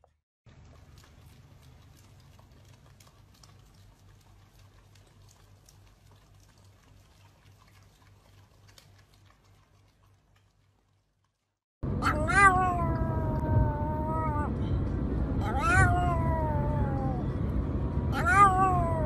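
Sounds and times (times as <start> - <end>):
dogs licking wet lapping: 0.5 - 11.5
low hum: 11.8 - 19.0.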